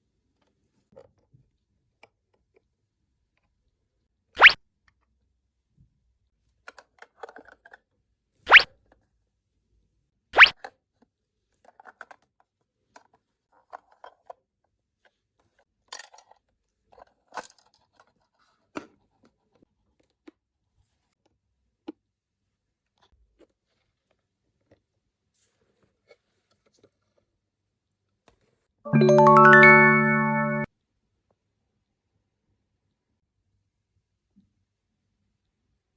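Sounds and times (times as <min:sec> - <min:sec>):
plastic toys clicking and tapping: 0:06.6 - 0:07.8.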